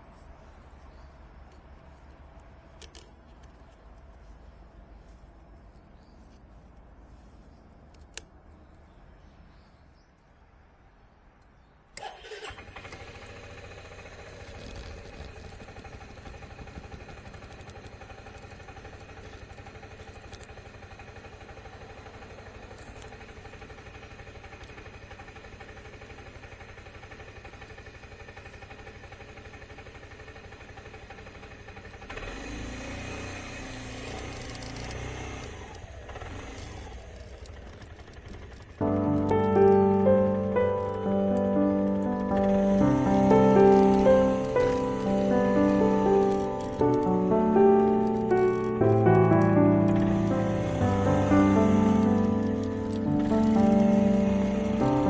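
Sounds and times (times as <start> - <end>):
scooter engine starting and running: 0.0 - 6.4, 12.0 - 55.0.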